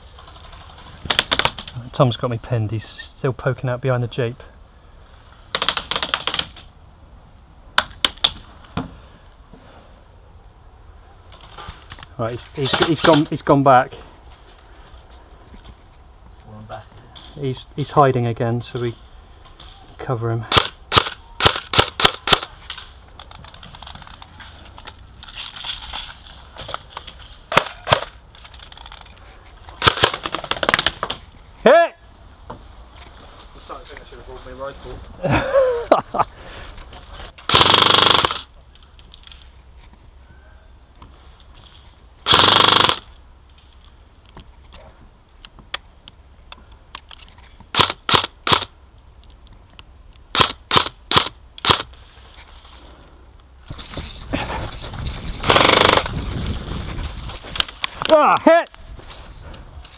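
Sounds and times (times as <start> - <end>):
airsoft gun shots: 20.5 - 22.5, 37.5 - 38.4, 42.3 - 43.0, 47.7 - 48.7, 50.3 - 51.9.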